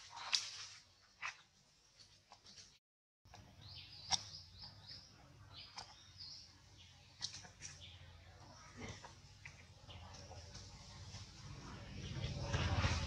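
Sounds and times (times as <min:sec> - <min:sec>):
faint bird chirps: 0:03.6 - 0:10.5.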